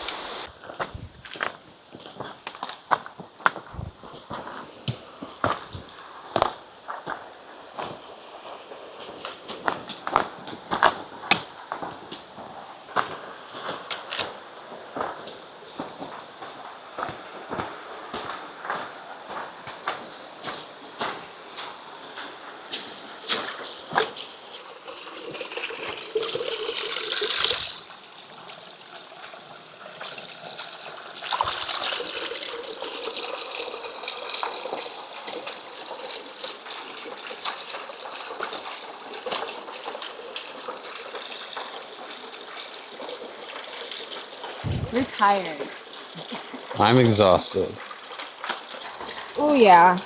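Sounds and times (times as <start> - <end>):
creek water flowing: 0.0 - 1.6, 21.9 - 50.0
footsteps: 0.0 - 8.0, 44.6 - 45.2.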